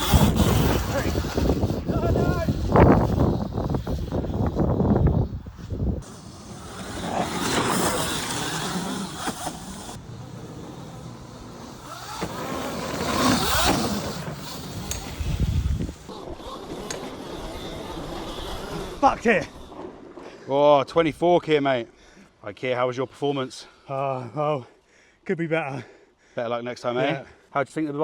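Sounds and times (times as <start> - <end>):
electric motor whine: 0.0 - 19.7.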